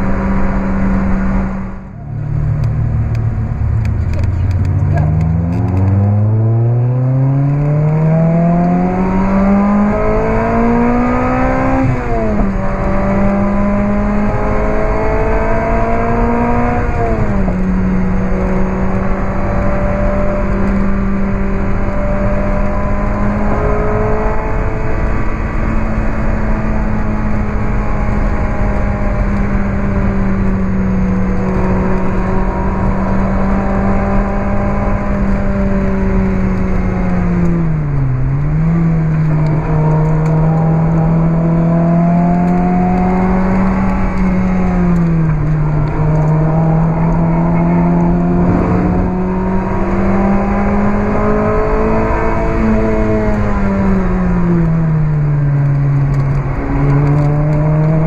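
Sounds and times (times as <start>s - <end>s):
car engine accelerating: 0.0s - 58.0s
road and wind noise: 0.0s - 58.0s.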